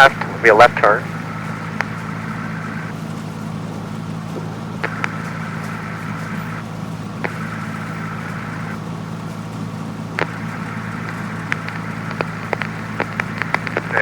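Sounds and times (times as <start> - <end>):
aircraft engine running in cockpit: 0.0 - 14.0
sharp clicks: 1.4 - 3.2, 4.0 - 8.8, 10.2 - 14.0.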